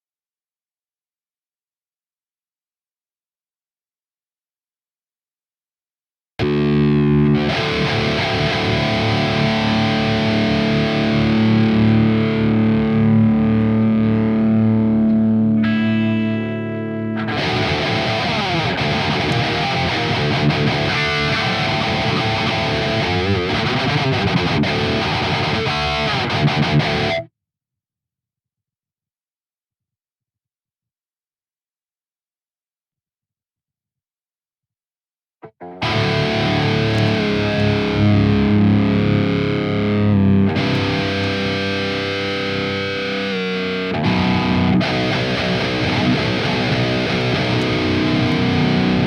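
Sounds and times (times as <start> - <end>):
distorted electric guitar: 6.4 - 27.3, 35.4 - 49.0.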